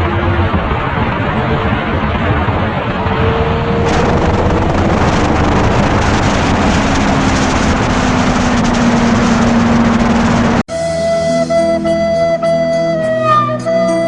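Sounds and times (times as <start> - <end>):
wind noise on microphone: 0.0 - 10.6
motorcycle engine: 0.0 - 11.6.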